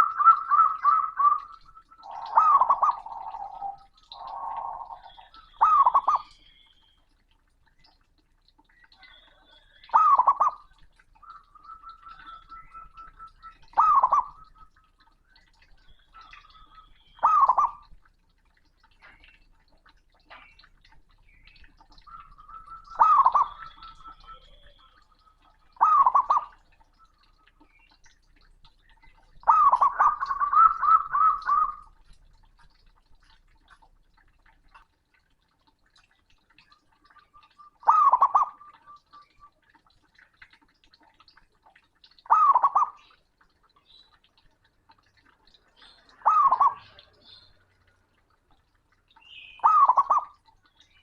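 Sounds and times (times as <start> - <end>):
dove cooing: 0.0 - 6.4, 9.0 - 14.9, 16.2 - 17.9, 22.1 - 27.6, 29.4 - 32.0, 37.0 - 39.3, 42.3 - 43.0, 46.2 - 47.2, 49.6 - 50.3.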